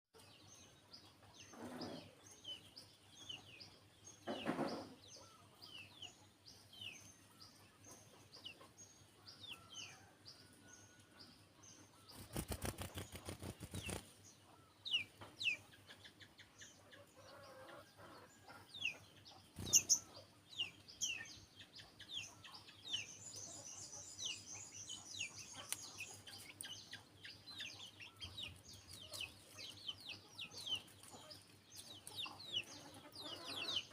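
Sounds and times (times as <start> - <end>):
sunbird chirping: 11.7 - 33.9
wings fluttering: 12.1 - 14.2, 19.6 - 20.0.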